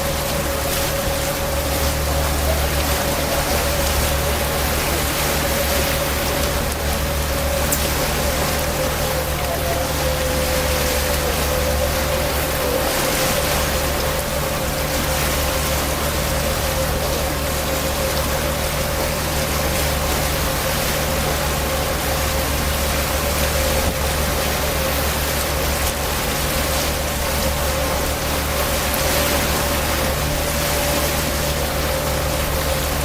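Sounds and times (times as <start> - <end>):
boat engine humming: 0.0 - 33.0
rushing wind and water: 0.0 - 33.0.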